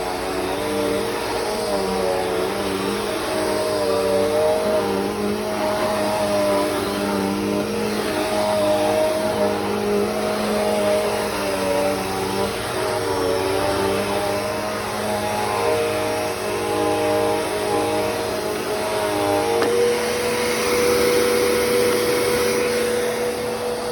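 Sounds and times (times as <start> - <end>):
vacuum cleaner running: 0.0 - 23.9.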